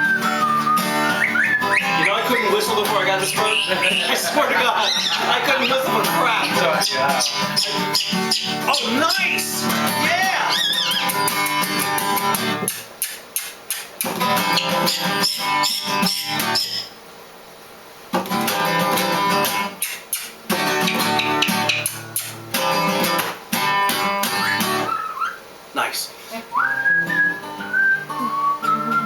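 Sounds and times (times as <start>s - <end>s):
guitar strumming chords: 0.0s - 12.7s, 14.0s - 16.9s, 18.1s - 19.8s, 20.4s - 24.9s.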